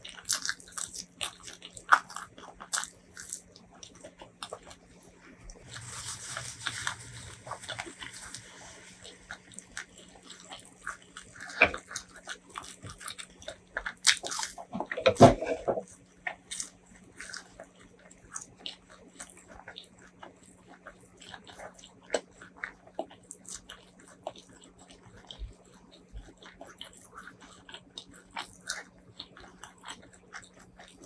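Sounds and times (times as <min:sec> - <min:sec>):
person chewing and biting: 0:00.0 - 0:05.0, 0:05.6 - 0:31.0.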